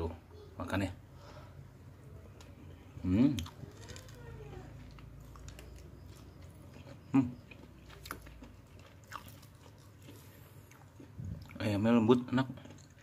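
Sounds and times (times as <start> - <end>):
chewing food: 3.3 - 13.0.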